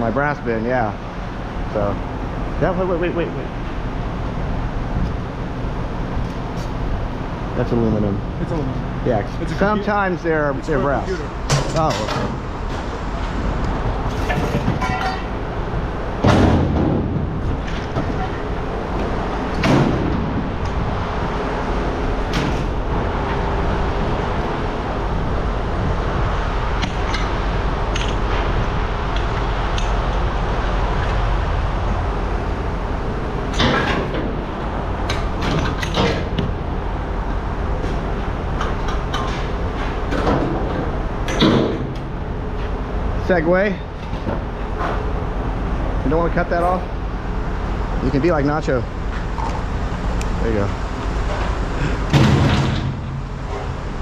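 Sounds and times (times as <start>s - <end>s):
scrap metal clanking into bins: 14.1s - 15.4s.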